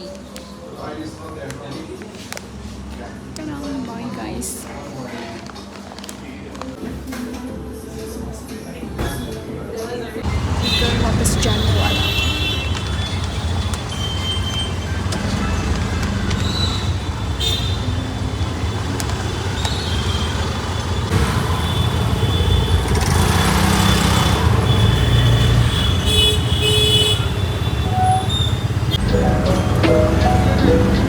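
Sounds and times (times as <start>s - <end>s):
traffic engine rumble: 10.2s - 31.0s
vehicles passing: 10.2s - 31.0s
car horn toots: 10.3s - 15.3s, 21.1s - 30.5s.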